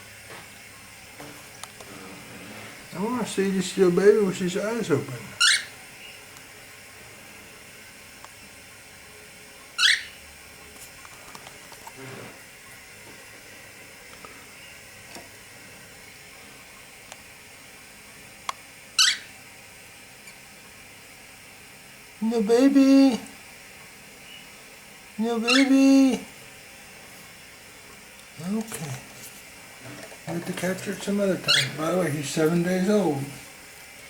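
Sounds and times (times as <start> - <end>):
faint steady hiss: 0.0 - 34.0
bird chick chirping: 9.8 - 10.2.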